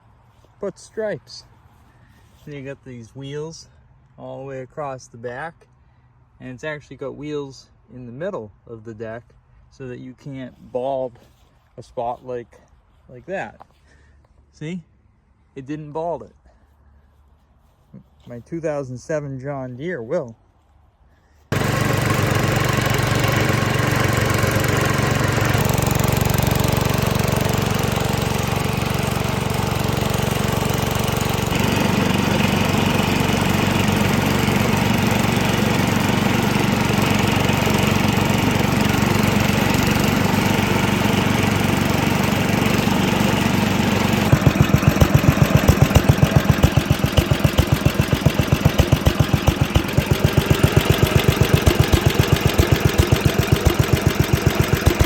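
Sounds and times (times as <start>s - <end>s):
garden tractor engine running: 21.5s - 55.0s.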